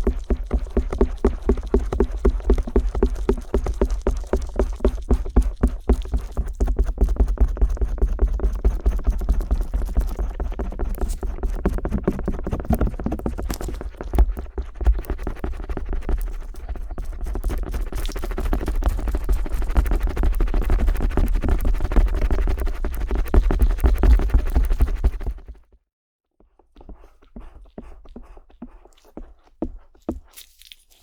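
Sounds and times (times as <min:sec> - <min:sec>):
ear pick scraping microphone: 0:10.8 - 0:14.3.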